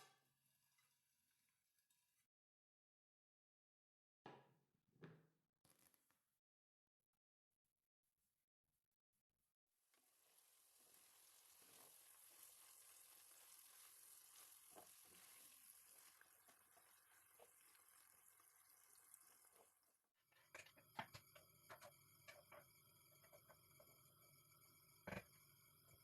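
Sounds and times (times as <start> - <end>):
food sizzling in a pan: 10.0 - 19.8.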